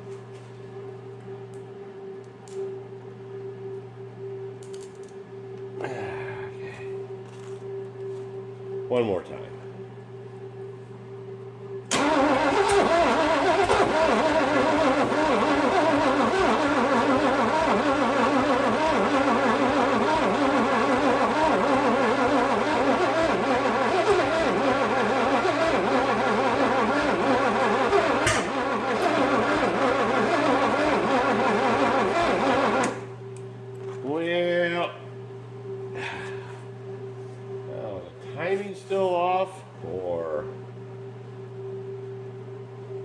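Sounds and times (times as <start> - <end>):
engine cranking on starter: 11.9 - 33.1.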